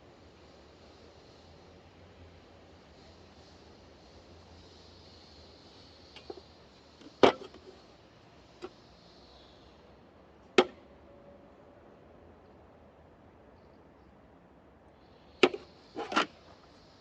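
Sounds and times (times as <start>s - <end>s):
sharp knocks of tools: 10.6s - 10.8s, 15.4s - 16.3s.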